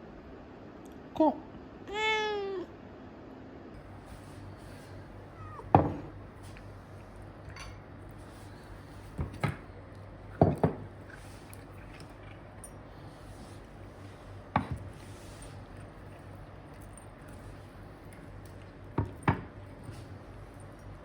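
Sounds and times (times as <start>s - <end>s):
cat meowing: 1.9s - 2.7s, 5.3s - 5.7s.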